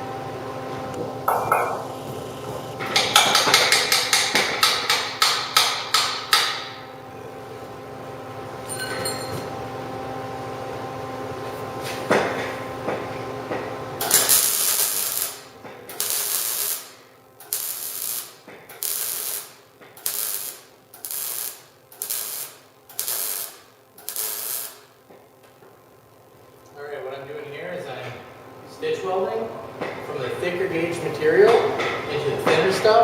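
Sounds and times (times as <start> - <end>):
machine hum: 0.0 - 33.0
welding crackle: 0.9 - 6.7, 14.0 - 25.9.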